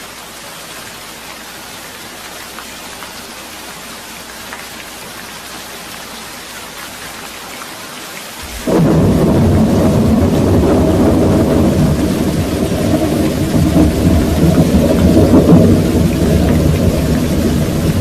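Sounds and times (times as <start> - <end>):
steady rain falling: 0.0 - 18.0
low thunder rumble: 8.4 - 18.0.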